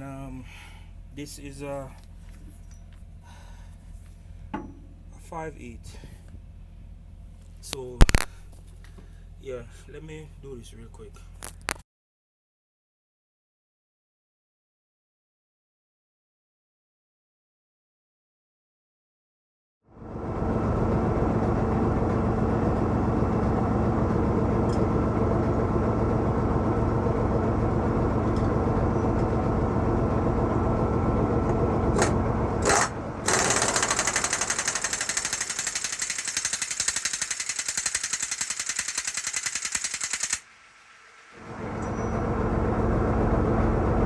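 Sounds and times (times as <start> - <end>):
impact wrench rattling: 32.0 - 40.5.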